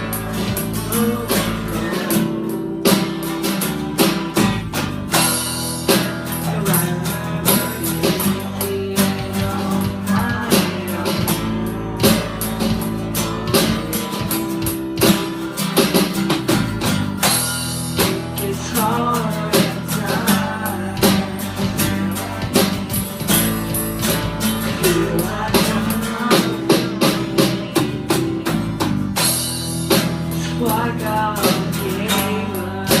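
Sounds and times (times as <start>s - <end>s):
person singing: 0.0s - 15.3s, 17.9s - 28.8s, 30.0s - 33.0s
drum beat: 0.0s - 33.0s
guitar playing: 0.0s - 33.0s.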